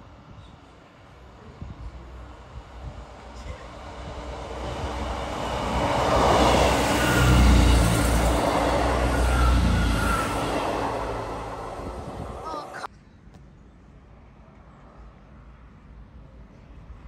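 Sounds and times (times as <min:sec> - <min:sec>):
diesel engines: 0:00.9 - 0:12.9
train wheels rumbling on rails: 0:01.7 - 0:12.9.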